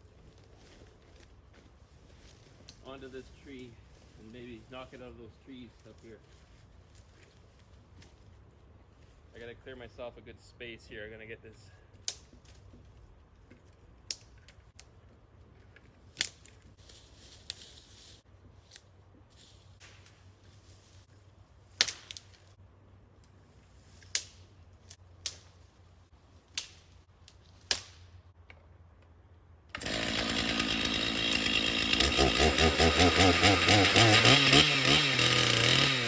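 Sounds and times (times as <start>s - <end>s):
twigs and branches snapping: 13.7s - 15.0s, 15.7s - 17.8s, 21.7s - 22.6s, 23.2s - 25.7s, 26.4s - 28.7s
chainsaw running loudly: 29.7s - 36.0s.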